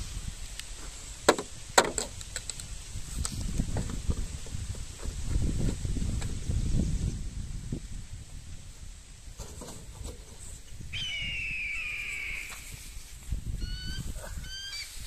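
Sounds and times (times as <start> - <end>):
bird whistled note: 10.9 - 12.9, 13.6 - 14.9
short sharp bird notes: 11.0 - 12.9.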